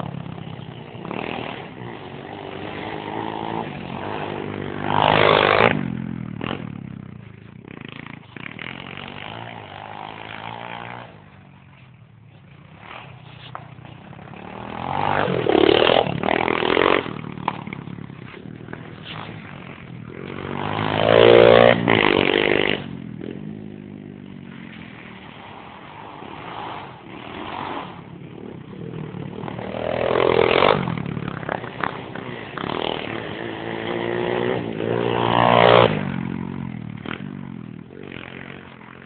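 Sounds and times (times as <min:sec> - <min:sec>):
motorbike engines revving: 0:00.0 - 0:39.0.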